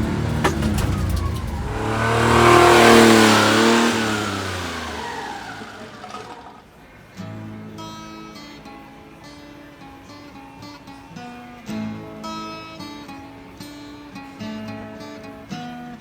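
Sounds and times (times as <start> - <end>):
motor vehicle driving past: 0.0 - 6.6
guitar music: 7.2 - 16.0.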